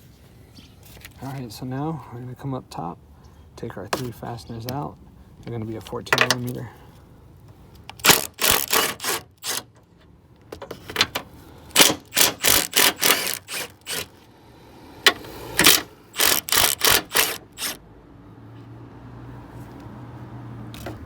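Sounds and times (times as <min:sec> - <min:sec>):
wrench clicking: 0:07.8 - 0:09.7, 0:11.7 - 0:14.1, 0:15.1 - 0:17.8.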